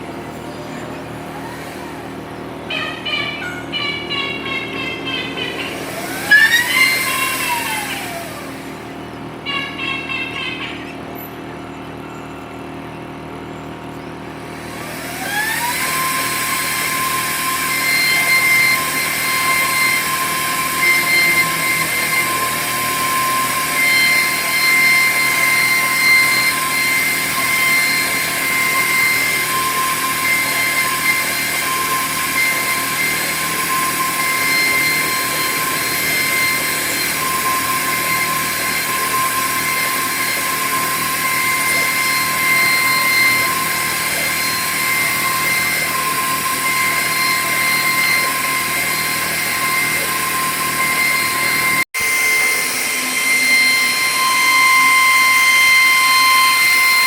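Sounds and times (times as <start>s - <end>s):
router cutting board: 0.0s - 9.0s, 14.4s - 57.0s
router spindle whine: 0.0s - 57.0s.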